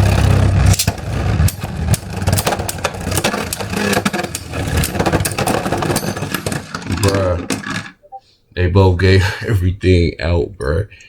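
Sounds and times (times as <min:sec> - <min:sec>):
plastic spinning tops clicking: 0:00.0 - 0:08.0.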